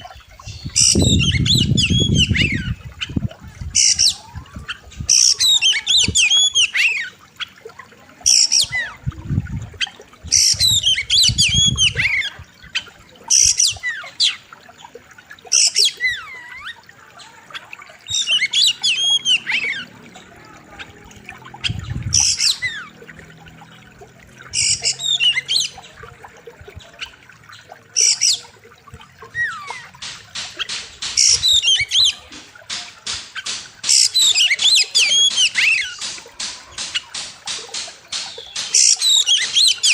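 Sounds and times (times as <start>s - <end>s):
bird singing whistled phrases: 0.4s - 3.1s, 3.8s - 7.2s, 18.0s - 19.9s, 24.6s - 25.9s, 31.2s - 32.2s, 38.4s - 39.9s.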